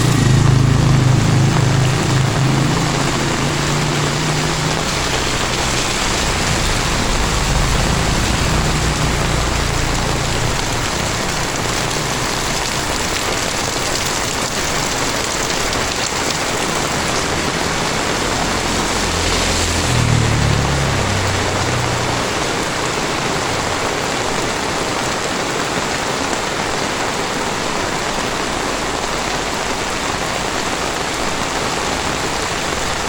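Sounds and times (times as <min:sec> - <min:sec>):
vehicle engine hum: 0:00.0 - 0:26.0
heavy rain falling: 0:00.0 - 0:33.0.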